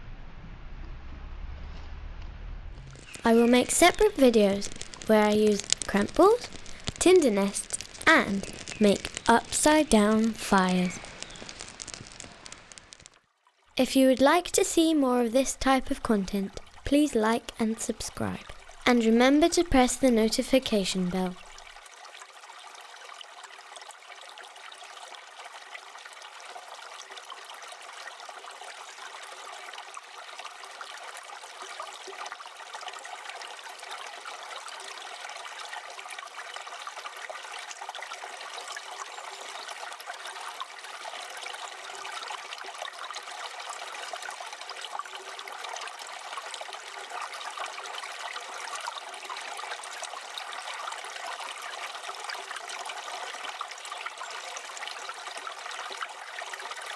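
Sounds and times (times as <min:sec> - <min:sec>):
wood fire crackling: 0:02.8 - 0:13.2, 0:13.8 - 0:21.7.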